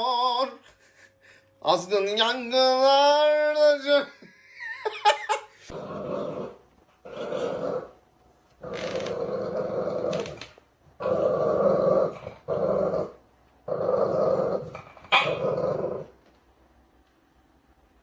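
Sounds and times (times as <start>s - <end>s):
dog growling: 5.7s - 8.0s, 8.6s - 16.2s.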